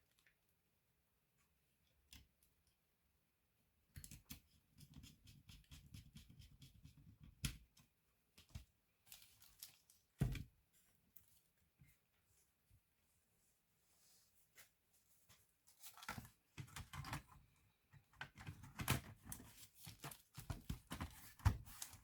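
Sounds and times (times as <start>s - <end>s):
laptop parts clicking and tapping: 18.1s - 22.0s.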